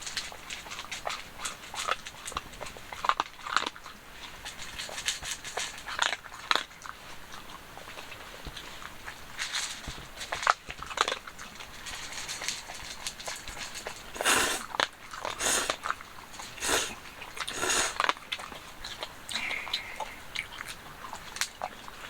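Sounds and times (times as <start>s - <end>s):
dog chewing something hard: 9.5s - 19.6s.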